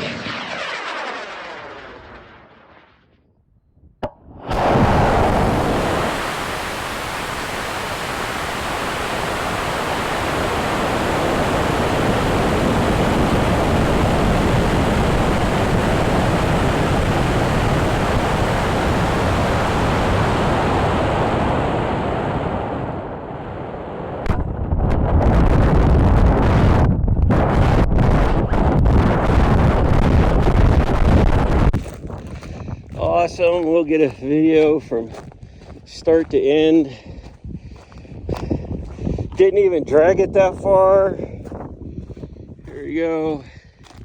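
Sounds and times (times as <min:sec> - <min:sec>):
rocket motor loud rushing: 0:00.0 - 0:03.1, 0:04.3 - 0:21.1.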